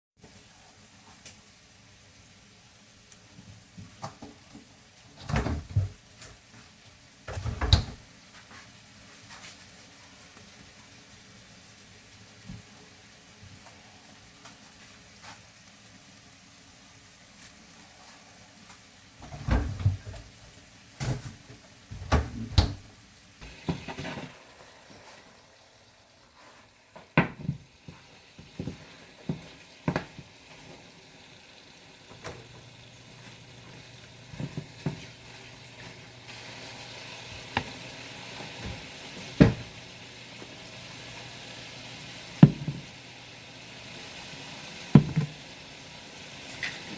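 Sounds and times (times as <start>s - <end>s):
steady hiss: 0.2s - 46.9s
objects knocking and clattering: 44.9s - 45.4s.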